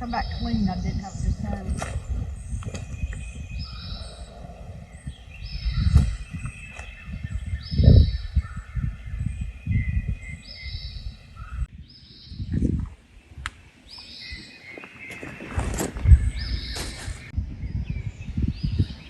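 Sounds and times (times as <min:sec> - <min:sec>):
low rumbling thumps: 0:00.0 - 0:10.3
songbird calling: 0:00.0 - 0:19.0.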